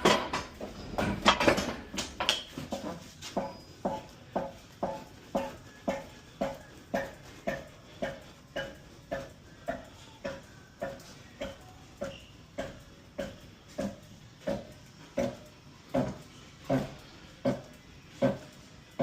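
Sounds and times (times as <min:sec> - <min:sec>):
pallet jack wheels squeaking: 0:02.6 - 0:07.7, 0:11.9 - 0:12.9.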